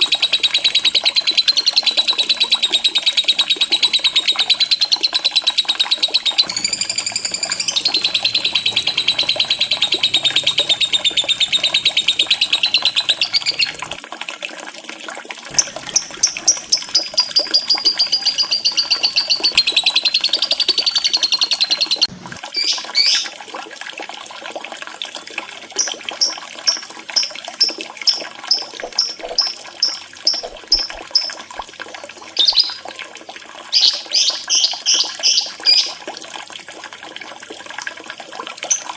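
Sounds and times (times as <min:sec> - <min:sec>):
bird short chirps: 0:00.0 - 0:14.0, 0:15.5 - 0:23.2
lovebird chattering trills: 0:00.0 - 0:14.0, 0:15.5 - 0:23.2
faint running water: 0:00.0 - 0:38.9.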